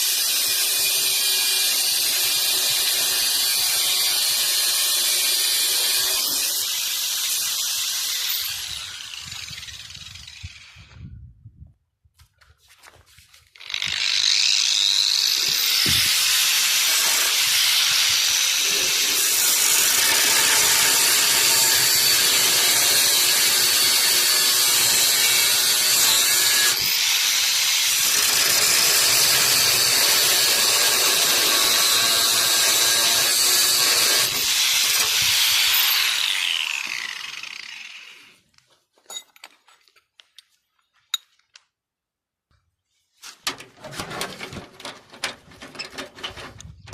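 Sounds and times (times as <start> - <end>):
angle grinder grinding steel: 0.0 - 10.9, 13.6 - 38.4.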